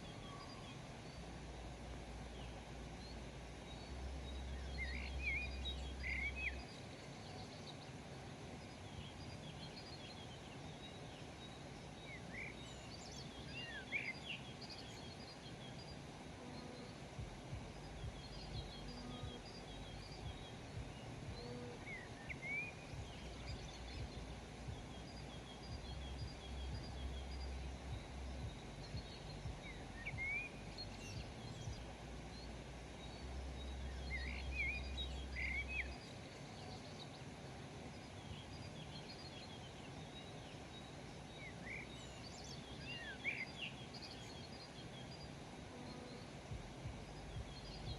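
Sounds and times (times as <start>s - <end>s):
birds chirping: 0.0s - 47.9s
faint background noise: 0.0s - 47.9s
low rumble: 17.2s - 21.8s, 22.9s - 34.2s, 46.5s - 47.9s.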